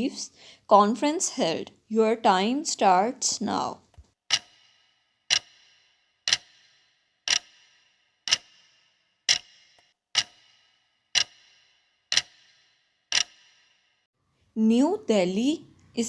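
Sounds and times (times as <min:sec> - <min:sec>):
clock-like ticks with ringing tail: 0:04.3 - 0:14.1.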